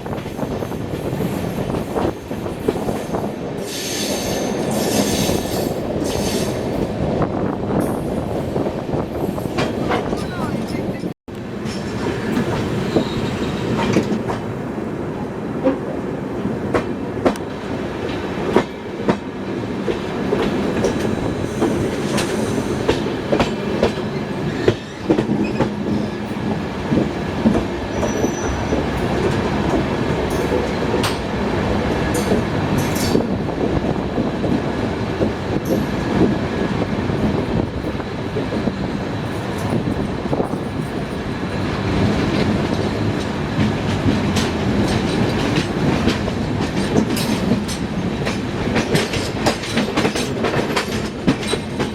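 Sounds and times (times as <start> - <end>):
train coaches rumbling: 0.0 - 51.9
faint high wheel squeal: 12.8 - 13.8, 27.9 - 28.6
wheels clicking over rail joints: 39.2 - 51.9
faint train clatter: 42.2 - 51.9.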